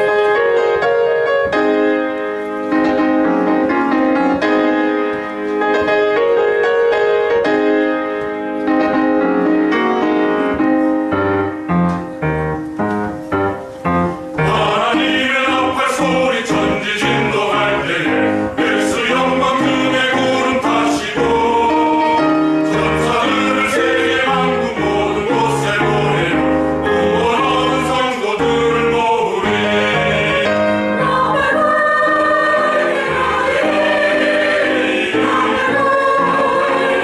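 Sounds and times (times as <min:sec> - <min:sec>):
piano playing chords: 0:00.0 - 0:37.0
choir singing: 0:14.4 - 0:37.0.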